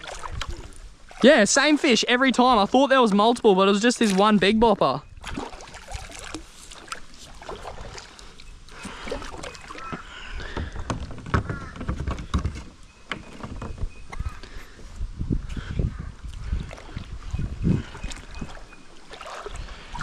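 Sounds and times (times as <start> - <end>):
light splashing: 0.0 - 10.0, 16.5 - 20.0.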